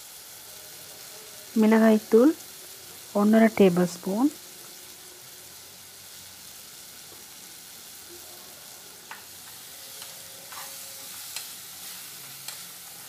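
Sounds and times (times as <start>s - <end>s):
food frying with a sizzle: 0.0s - 13.0s
spatula scraping a pot: 10.5s - 11.3s.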